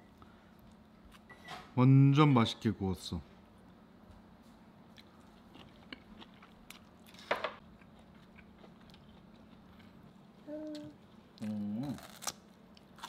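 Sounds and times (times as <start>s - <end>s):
person chewing meat: 4.9s - 13.0s.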